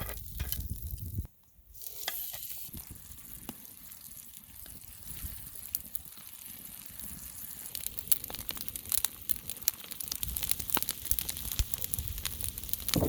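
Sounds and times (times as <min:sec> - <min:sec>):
fire crackling pops: 0:00.0 - 0:01.3, 0:02.7 - 0:13.0
meat sizzling in oil: 0:01.8 - 0:13.0.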